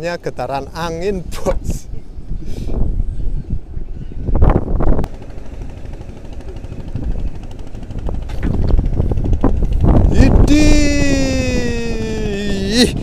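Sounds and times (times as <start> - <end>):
wind buffeting microphone: 0.6 - 13.0.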